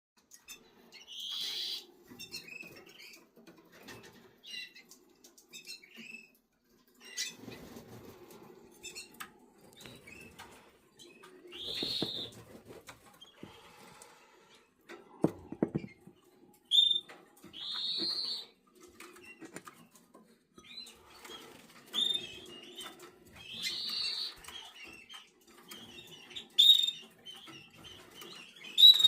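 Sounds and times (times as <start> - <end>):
chicks cheeping: 0.3 - 6.4, 7.0 - 14.7, 20.6 - 29.0
rustling and fluttering: 1.9 - 14.0
loud high bird calls: 11.5 - 12.4.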